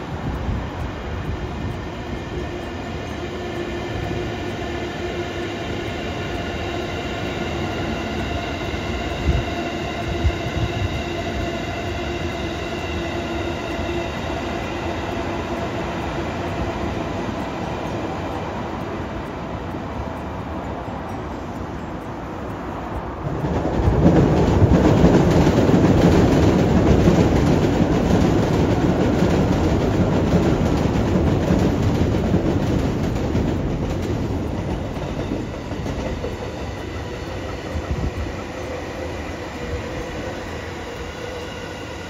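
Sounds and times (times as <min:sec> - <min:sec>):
electric train passing: 0:00.0 - 0:42.0
train whine: 0:00.0 - 0:42.0
wheel clacks: 0:22.9 - 0:41.1.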